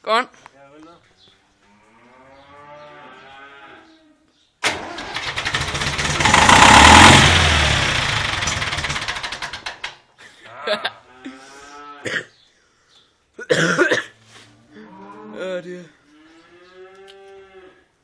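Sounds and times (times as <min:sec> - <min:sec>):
tractor engine cranking and firing: 0:04.6 - 0:10.0.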